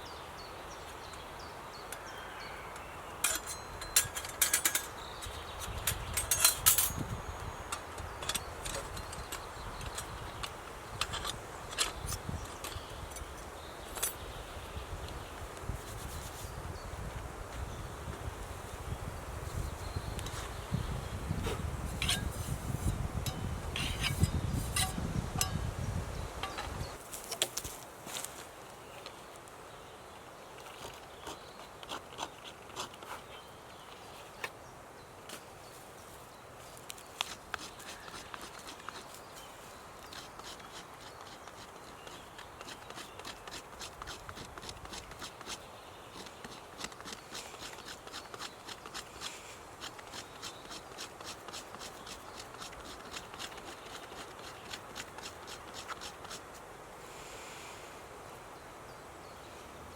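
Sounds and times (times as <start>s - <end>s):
short scraping strokes by hand: 15.7s - 16.6s, 23.8s - 25.5s
faint steady hiss: 43.7s - 59.9s.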